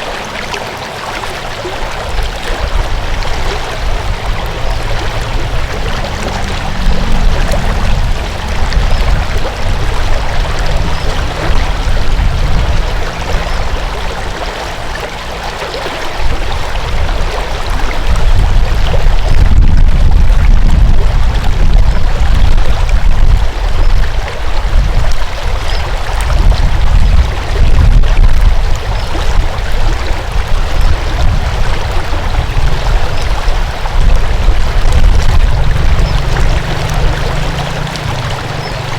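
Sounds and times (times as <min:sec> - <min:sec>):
water rushing: 0:00.0 - 0:38.9
wind buffeting microphone: 0:00.0 - 0:38.9.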